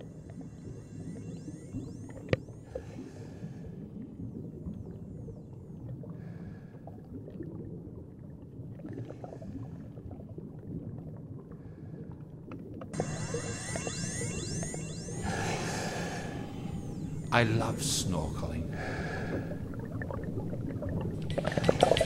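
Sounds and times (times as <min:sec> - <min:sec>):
muffled underwater water rumble: 0:00.0 - 0:22.0.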